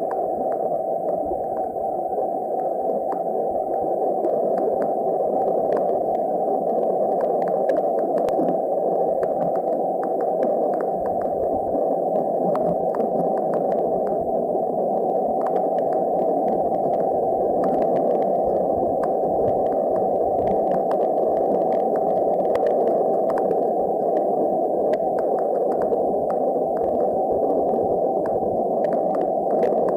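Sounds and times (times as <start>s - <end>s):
faint scattered clicks: 0.0s - 1.8s, 2.5s - 14.3s, 14.9s - 29.9s
muffled boiling hiss: 0.0s - 29.9s.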